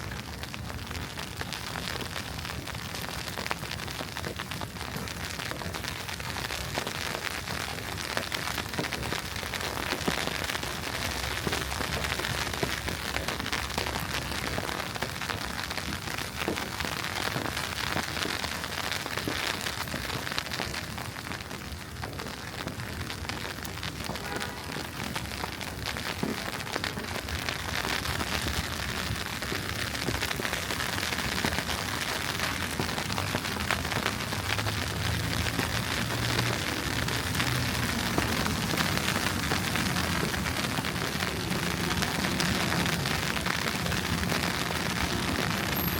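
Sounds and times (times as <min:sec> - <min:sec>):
wet snow falling: 0:00.0 - 0:45.9.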